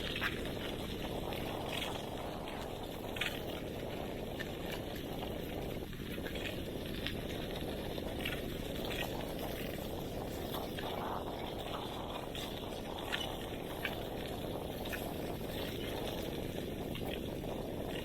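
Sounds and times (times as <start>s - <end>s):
bicycle tyres rolling: 0.0s - 18.0s
wind on microphone: 0.0s - 18.0s.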